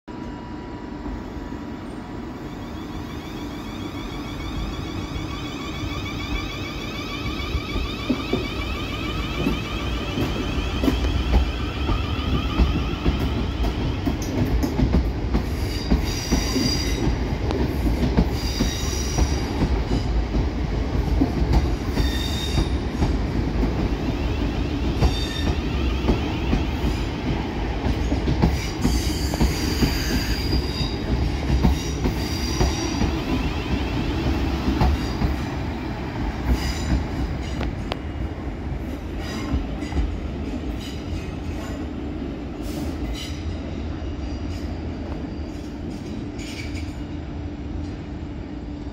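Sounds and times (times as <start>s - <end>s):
train wheels rumbling on rail: 0.2s - 48.9s
high wheel squeals: 2.5s - 13.8s.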